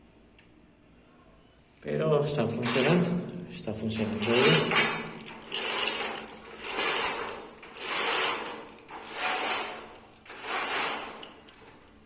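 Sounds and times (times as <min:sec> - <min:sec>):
window blind pull rasping: 0:02.5 - 0:12.0.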